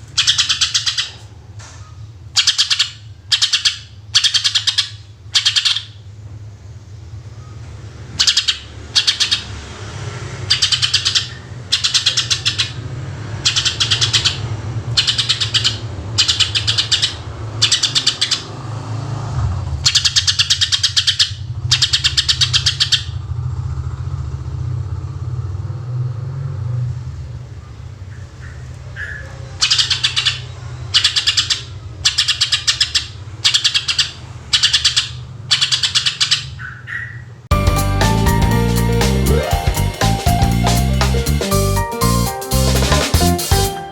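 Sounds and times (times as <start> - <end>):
bird singing trilled phrases: 0.2 - 1.2, 2.4 - 6.0, 8.2 - 9.5, 10.5 - 12.8, 13.4 - 18.5, 19.8 - 23.2, 28.1 - 37.3.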